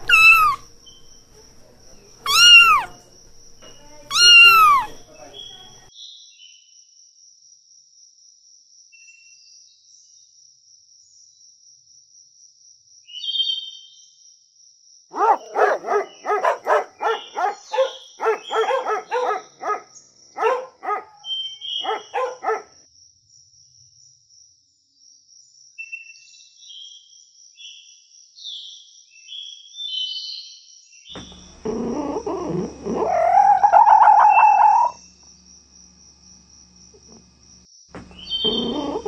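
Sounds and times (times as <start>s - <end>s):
faint high chirps: 0.0s - 5.9s, 36.9s - 39.0s
puppies barking: 0.0s - 5.9s, 15.2s - 21.2s, 21.8s - 22.7s, 31.2s - 35.0s, 38.0s - 39.0s.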